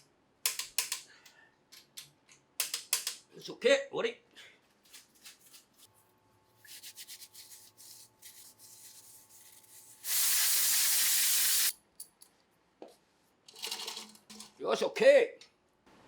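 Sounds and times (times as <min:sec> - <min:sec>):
pressurised gas hissing: 0:10.0 - 0:11.7.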